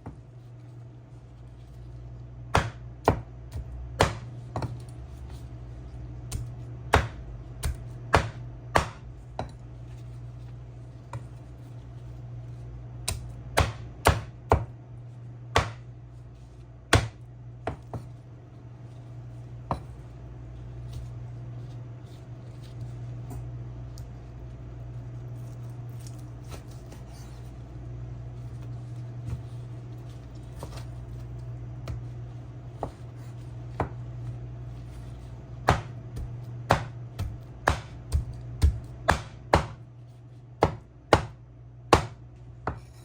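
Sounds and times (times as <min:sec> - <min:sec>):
knife chopping on cutting board: 0:02.5 - 0:04.9, 0:06.3 - 0:09.6, 0:13.0 - 0:14.7, 0:15.5 - 0:15.9, 0:16.9 - 0:18.1, 0:19.7 - 0:19.9, 0:30.5 - 0:30.9, 0:31.8 - 0:32.2, 0:32.8 - 0:34.1, 0:34.8 - 0:39.8, 0:40.6 - 0:43.0.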